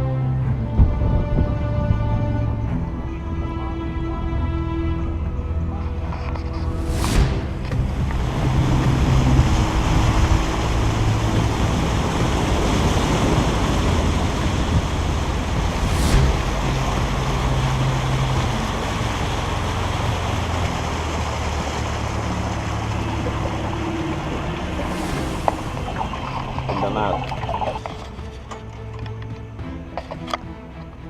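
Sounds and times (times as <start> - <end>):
water noise: 0.0 - 31.0
wind on microphone: 0.5 - 3.0, 6.1 - 28.3
boat motor running: 0.6 - 31.0.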